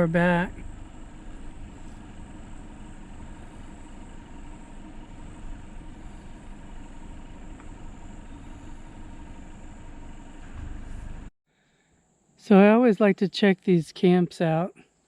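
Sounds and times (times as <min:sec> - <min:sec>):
pickup truck engine running: 0:00.0 - 0:11.3.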